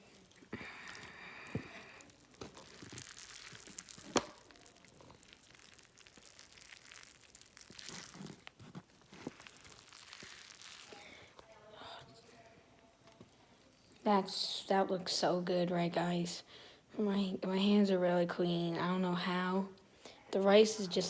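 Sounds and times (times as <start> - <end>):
rice being mixed on a plate: 0.0 - 11.5.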